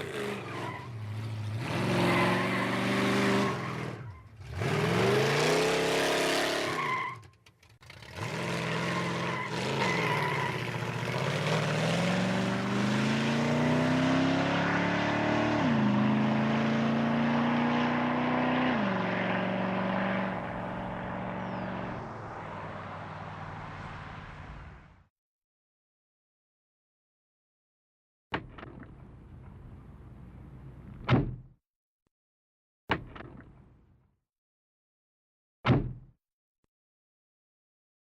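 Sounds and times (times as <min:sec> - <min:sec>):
car engine revving: 0:07.8 - 0:24.0.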